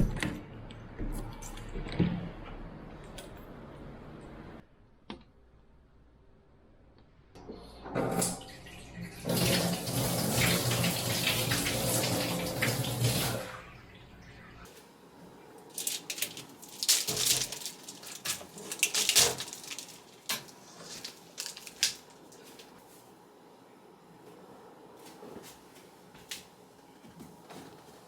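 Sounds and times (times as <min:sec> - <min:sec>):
water running from a tap: 0:08.1 - 0:13.9.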